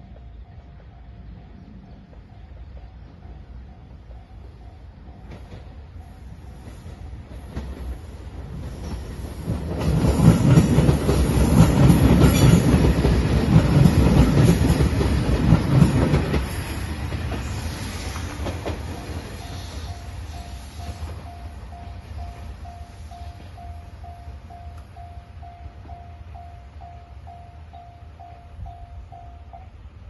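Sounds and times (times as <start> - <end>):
train running noise: 0.0 - 30.0
wheels clacking over rail joints: 5.2 - 20.1
crossing bell dinging: 10.2 - 16.4, 18.9 - 30.0.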